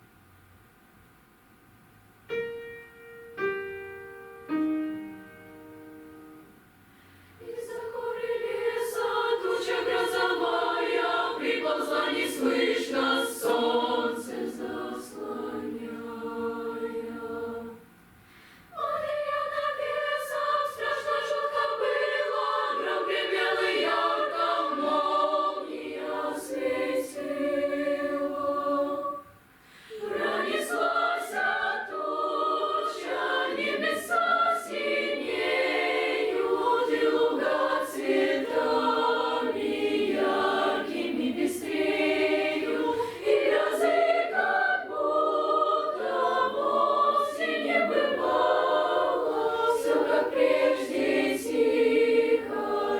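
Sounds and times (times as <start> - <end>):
children's choir singing: 7.4 - 17.9, 18.7 - 52.9.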